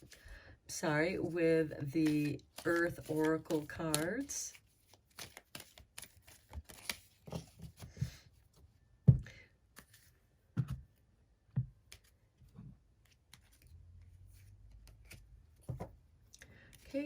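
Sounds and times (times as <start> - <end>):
cards being shuffled: 2.0 - 8.0.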